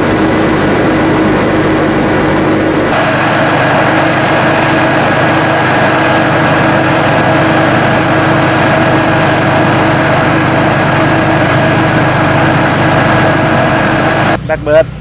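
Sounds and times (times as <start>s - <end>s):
combine harvester engine running: 0.0s - 14.5s
high mechanical whine: 0.0s - 14.8s.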